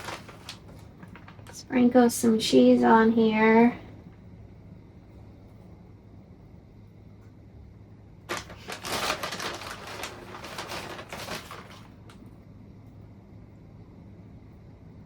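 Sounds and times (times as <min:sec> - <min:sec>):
plastic bag crinkling: 0:00.0 - 0:01.9, 0:08.3 - 0:12.3
low steady hum: 0:00.0 - 0:15.0.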